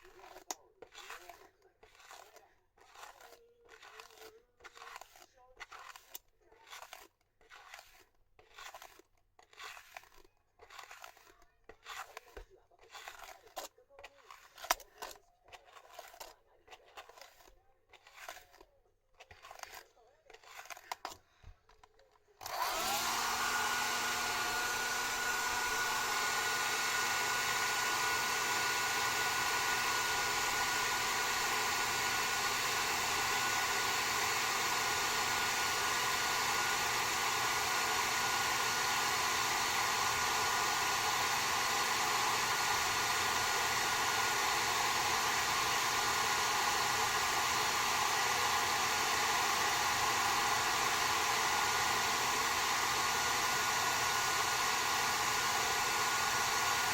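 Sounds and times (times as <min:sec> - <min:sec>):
hair dryer blowing: 0:00.0 - 0:02.3, 0:22.4 - 0:56.9.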